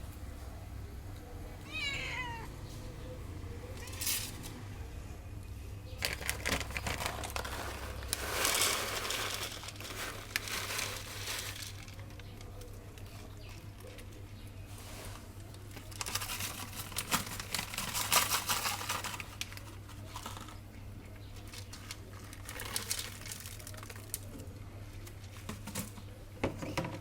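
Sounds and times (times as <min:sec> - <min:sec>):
cat meowing: 0:01.6 - 0:02.6.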